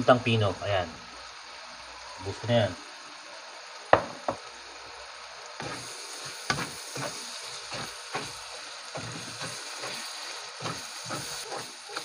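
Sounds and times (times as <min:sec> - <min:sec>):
food sizzling in hot oil: 0:00.0 - 0:12.0
spatula stirring against pan: 0:05.6 - 0:12.0.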